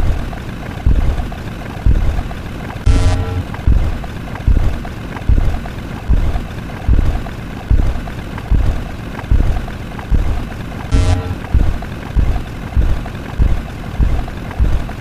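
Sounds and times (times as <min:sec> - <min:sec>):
steady rumbling noise: 0:00.0 - 0:15.0
low thump: 0:00.9 - 0:01.2, 0:11.4 - 0:14.8.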